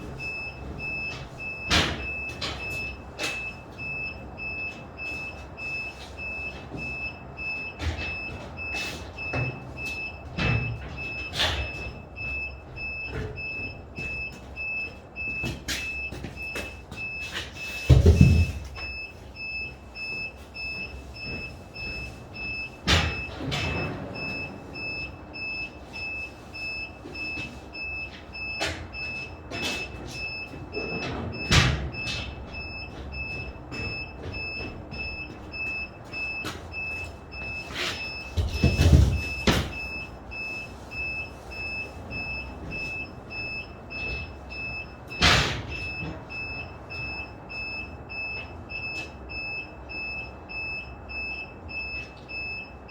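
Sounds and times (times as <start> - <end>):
heavy knocks and thuds: 17.8 - 18.7.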